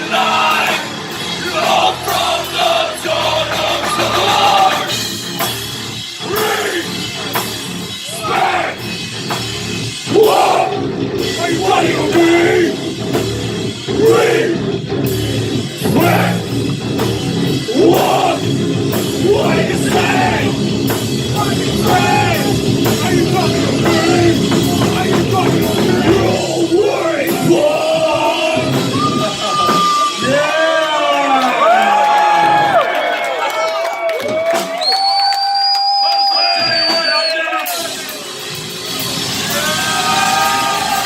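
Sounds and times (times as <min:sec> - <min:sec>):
yelled sung vocals: 0:00.0 - 0:05.1, 0:06.2 - 0:07.3, 0:08.0 - 0:08.9, 0:10.0 - 0:14.8, 0:15.8 - 0:16.6, 0:17.5 - 0:32.8
heavy metal band playing live: 0:00.0 - 0:31.1, 0:37.6 - 0:41.0.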